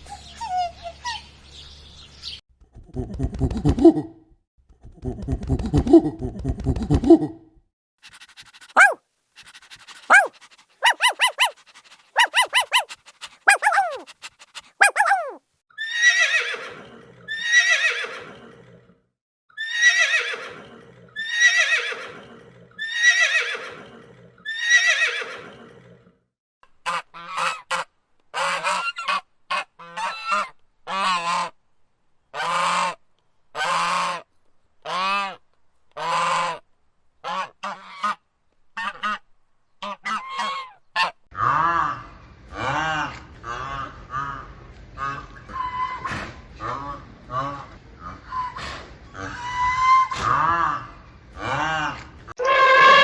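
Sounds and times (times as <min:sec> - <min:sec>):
goose honking: 0:52.4 - 0:53.0.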